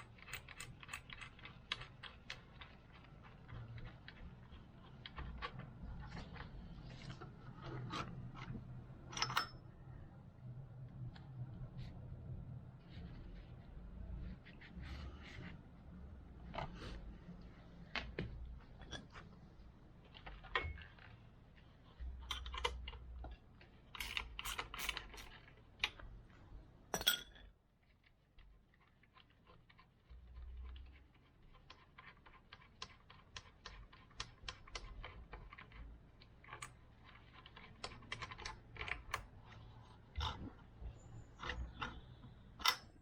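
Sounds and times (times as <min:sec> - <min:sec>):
tools and metal parts clinking: 0:09.1 - 0:09.7, 0:20.5 - 0:21.1, 0:26.9 - 0:27.5.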